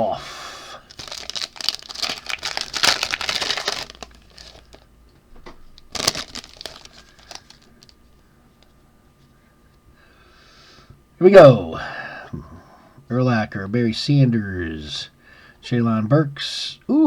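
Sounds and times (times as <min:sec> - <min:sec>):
card pack wrapper crinkling and tearing: 0:00.9 - 0:04.9, 0:05.8 - 0:08.0
small rustles: 0:05.5 - 0:09.3.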